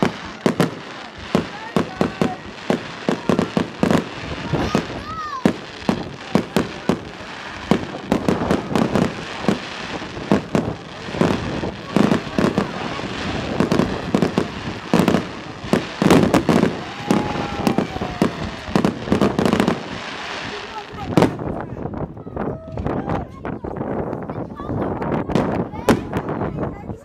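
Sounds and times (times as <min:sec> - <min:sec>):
fireworks crackling: 0:00.0 - 0:22.2, 0:22.8 - 0:26.9
fireworks bangs: 0:00.0 - 0:26.8
falling firework whistle: 0:15.8 - 0:19.8.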